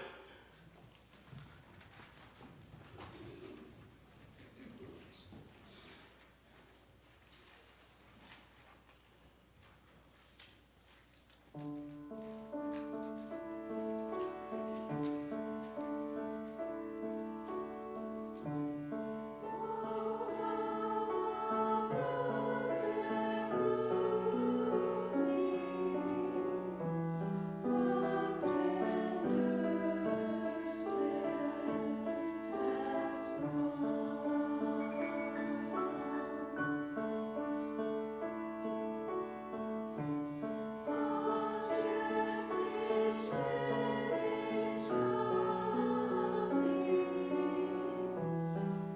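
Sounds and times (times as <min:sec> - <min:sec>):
choir singing: 0:12.8 - 0:38.5, 0:40.0 - 0:48.9.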